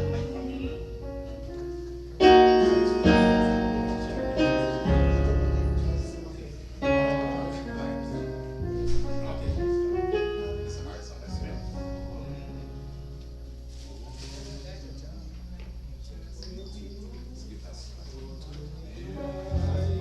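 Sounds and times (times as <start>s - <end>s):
piano playing hymn chords: 0.0s - 17.4s, 18.9s - 20.0s.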